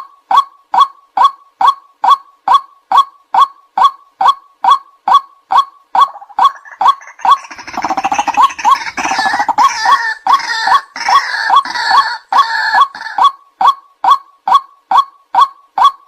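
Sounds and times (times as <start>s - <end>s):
harsh chuckling bird chatter: 6.0s - 13.3s.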